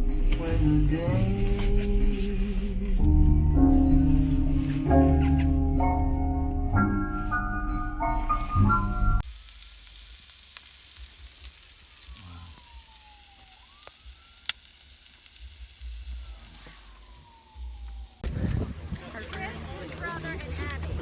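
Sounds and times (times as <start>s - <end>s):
low rumble: 0.0s - 9.2s, 15.2s - 21.0s
steady hiss: 9.2s - 18.2s
faint siren wailing: 11.7s - 18.5s.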